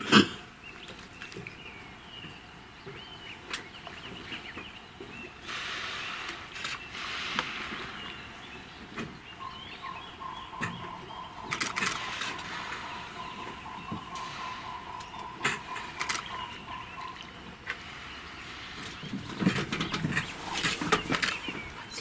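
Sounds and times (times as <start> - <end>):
small birds chirping: 0.4 - 22.0
steady high tone: 9.4 - 17.5
rushing noise: 9.8 - 22.0.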